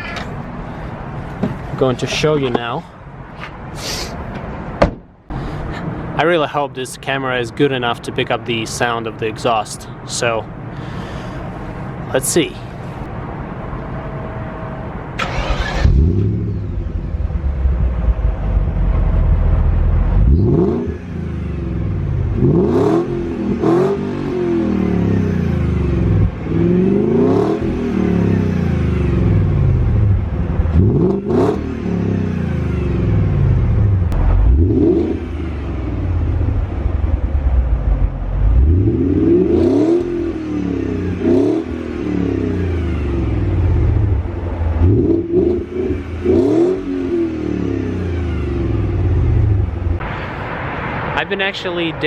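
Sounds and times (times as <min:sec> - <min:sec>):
car engine exhaust revving: 0:15.2 - 0:50.5.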